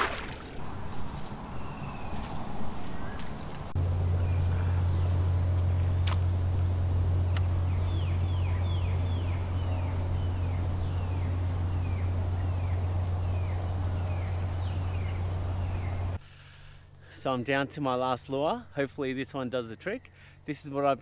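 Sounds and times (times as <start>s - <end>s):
bird calling falling notes: 0.0s - 16.2s
steady low hum: 0.0s - 17.1s.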